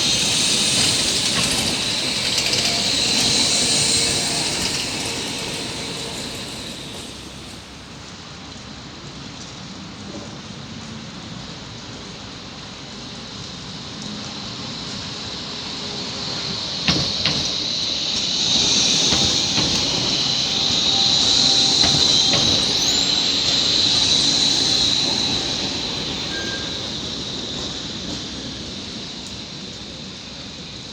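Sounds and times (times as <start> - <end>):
high wheel squeal: 0.0 - 8.0, 15.6 - 30.8
tram wheels clicking over joints: 0.0 - 8.2, 16.0 - 30.9.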